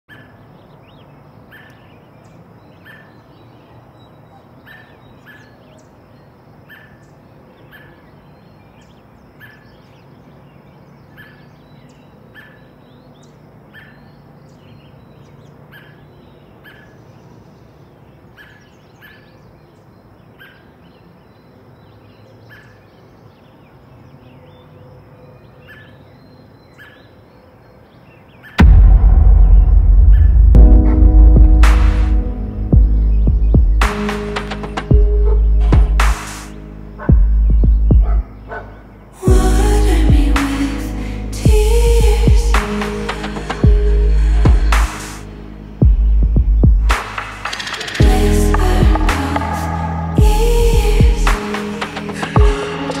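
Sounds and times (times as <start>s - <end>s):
bird high chirp: 32.2s - 39.0s.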